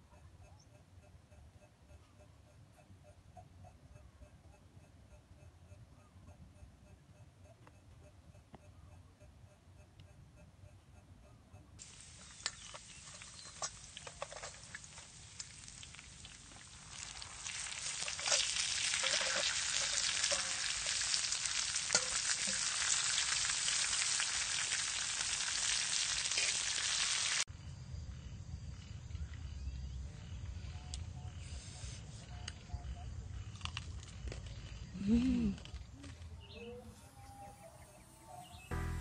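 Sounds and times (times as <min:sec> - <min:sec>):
food sizzling in hot oil: 0:11.8 - 0:27.5.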